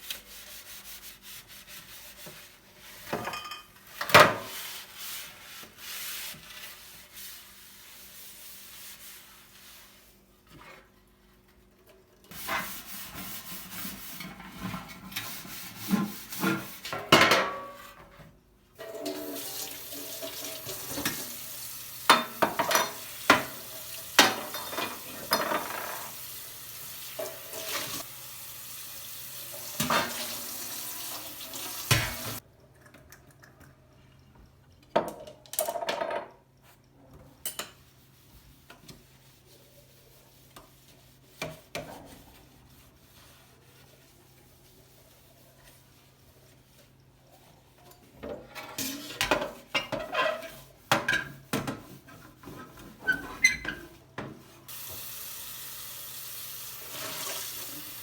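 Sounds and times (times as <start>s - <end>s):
dishes and cutlery clinking: 3.0s - 4.4s, 22.1s - 23.5s, 24.2s - 26.1s
tap running into sink: 31.5s - 32.4s.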